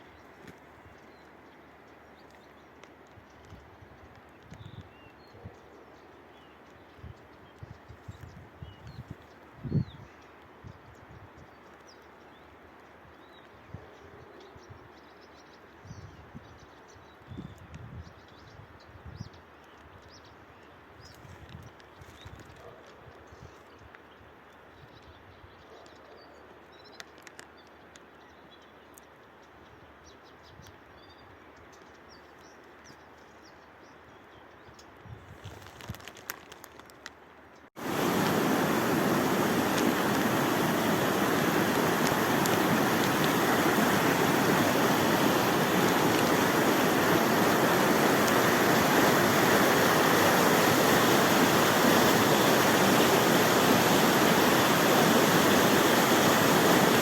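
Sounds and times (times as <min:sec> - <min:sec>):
rush of fast-flowing water: 0:37.8 - 0:57.0.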